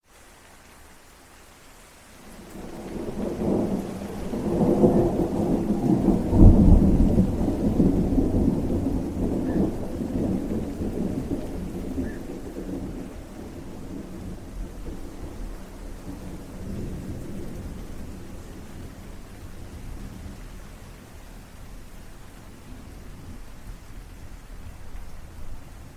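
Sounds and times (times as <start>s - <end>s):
steady rain: 0.0s - 25.9s
rolling thunder: 2.4s - 21.3s.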